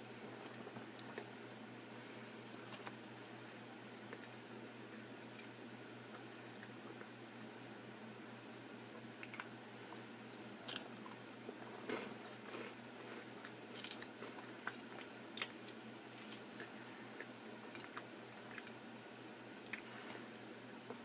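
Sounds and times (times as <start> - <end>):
person chewing food: 9.2 - 21.0.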